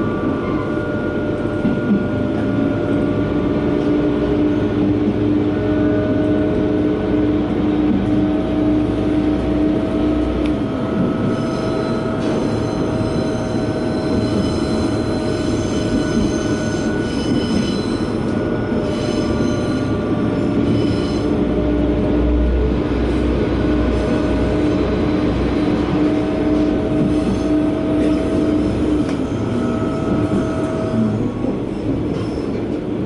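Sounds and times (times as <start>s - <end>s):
diesel railcar engine drone: 0.0s - 33.0s
rail rumble: 0.0s - 33.0s
high wheel squeal: 11.1s - 21.4s, 24.0s - 32.7s.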